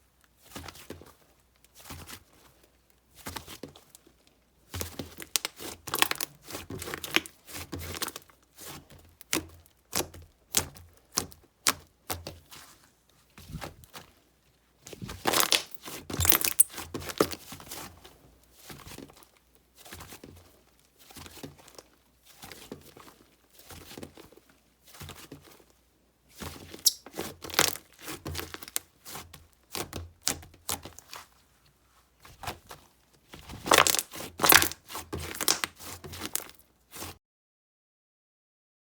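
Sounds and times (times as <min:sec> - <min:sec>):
slime crackling and popping: 0:05.1 - 0:06.3, 0:15.2 - 0:17.4, 0:33.5 - 0:36.6.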